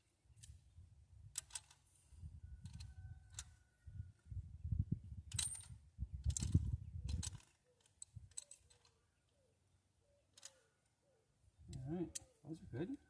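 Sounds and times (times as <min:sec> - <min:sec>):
ratchet clicking and scraping: 0:01.3 - 0:01.8, 0:05.2 - 0:09.0.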